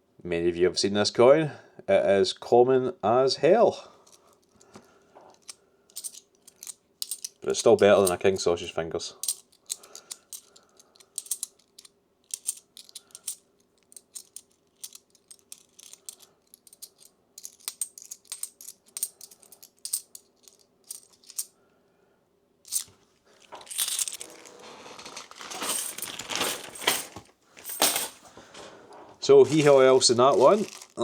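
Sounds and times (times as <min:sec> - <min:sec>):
coins clicking and clinking: 0:05.3 - 0:08.3, 0:09.2 - 0:21.5, 0:22.7 - 0:28.3
coins rustling and jingling: 0:05.3 - 0:08.3, 0:09.2 - 0:21.5, 0:22.7 - 0:28.3, 0:29.5 - 0:31.0.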